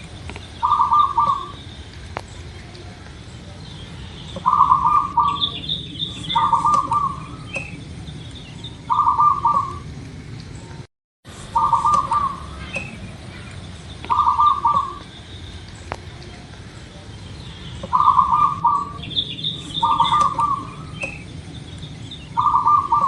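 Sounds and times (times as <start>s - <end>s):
small birds chirping: 0.0s - 23.0s
dove cooing: 0.5s - 3.1s, 4.3s - 10.0s, 11.4s - 15.1s, 17.8s - 21.7s, 22.3s - 23.0s.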